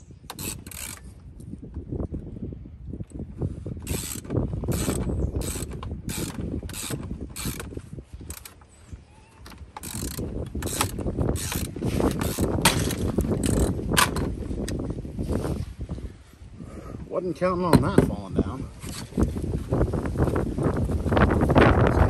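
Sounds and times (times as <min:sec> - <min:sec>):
ratchet wrench clicking: 0:00.3 - 0:01.1, 0:03.8 - 0:08.6, 0:09.8 - 0:14.2.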